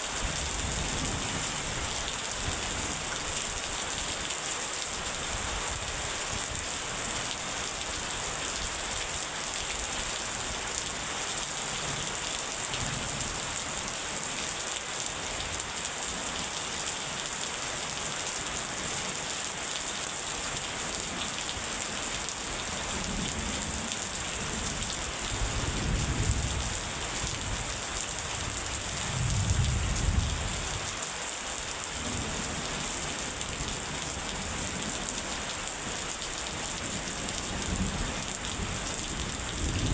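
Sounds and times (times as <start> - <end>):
heavy rain: 0.0 - 39.9
low thunder rumbling: 28.9 - 30.6, 39.2 - 39.9.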